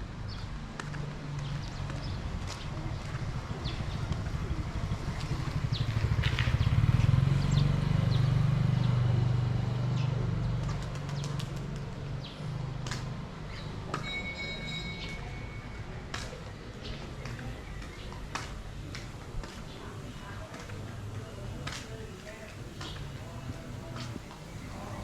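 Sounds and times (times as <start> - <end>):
street clicks and chirps: 0.0 - 25.0
vehicle engine passing: 3.2 - 13.1.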